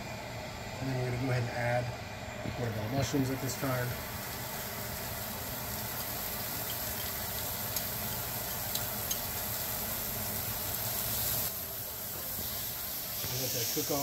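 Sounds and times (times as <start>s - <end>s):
mushrooms sizzling in a pan: 3.0s - 14.0s.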